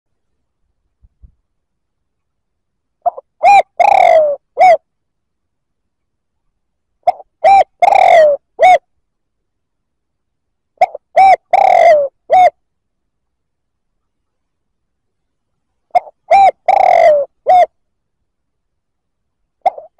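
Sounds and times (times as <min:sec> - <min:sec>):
dove cooing: 0:03.0 - 0:04.8, 0:07.0 - 0:08.8, 0:10.8 - 0:12.6, 0:15.9 - 0:17.8, 0:19.6 - 0:19.9.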